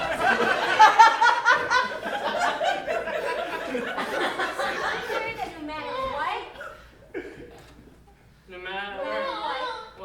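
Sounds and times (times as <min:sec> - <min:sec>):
audience laughing: 0:00.0 - 0:05.9.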